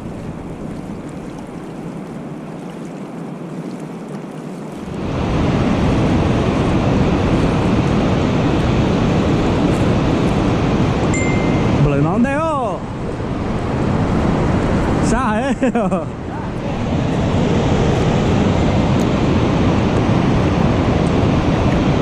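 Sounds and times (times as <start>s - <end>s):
wind and water rushing: 0.0s - 22.0s.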